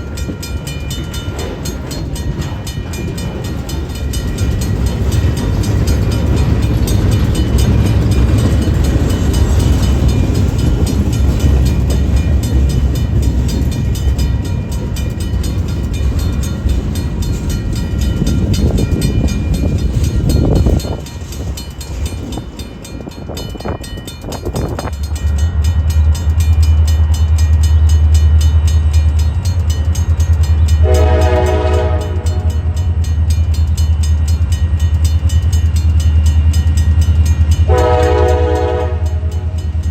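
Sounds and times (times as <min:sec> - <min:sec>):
diesel locomotive droning: 0:00.0 - 0:39.9
freight train rumbling past: 0:00.0 - 0:39.9
train horn blast: 0:30.8 - 0:32.8, 0:37.7 - 0:39.6.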